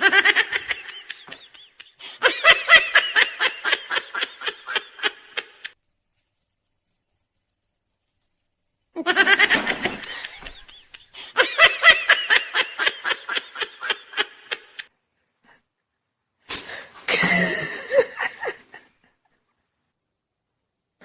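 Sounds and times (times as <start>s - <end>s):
person laughing: 0.0s - 5.8s, 9.0s - 14.9s, 17.1s - 19.4s.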